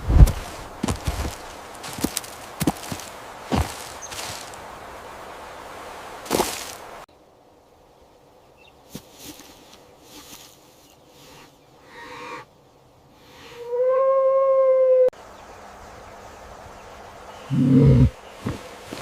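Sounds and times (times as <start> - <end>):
rustling: 0.0 - 4.7, 6.2 - 7.1, 8.9 - 11.4, 18.4 - 19.0.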